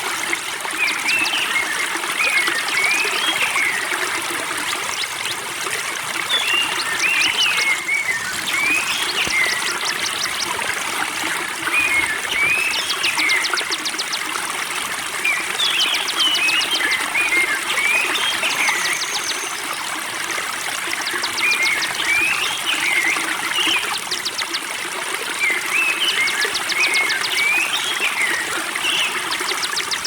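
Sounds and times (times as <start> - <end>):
water trickling: 0.0 - 30.0
songbird singing: 0.9 - 14.4.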